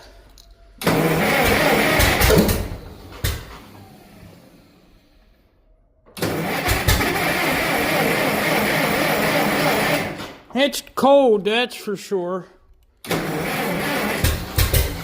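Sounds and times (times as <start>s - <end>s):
engine cranking on starter: 0.8s - 5.4s, 6.0s - 10.4s, 13.0s - 15.0s.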